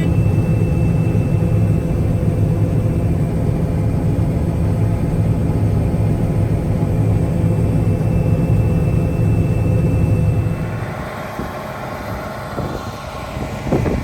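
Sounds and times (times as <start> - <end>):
thin high whine: 0.0 - 3.4
combine harvester drone: 0.0 - 14.0.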